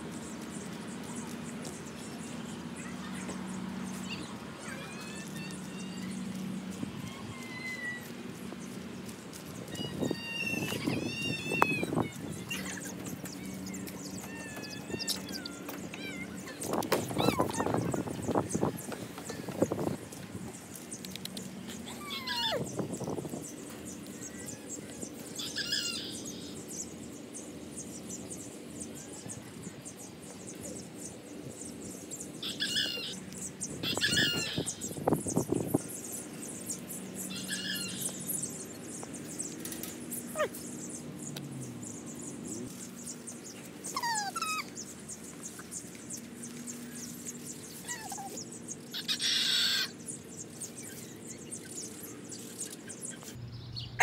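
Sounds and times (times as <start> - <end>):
high bird chirps: 9.6 - 18.7.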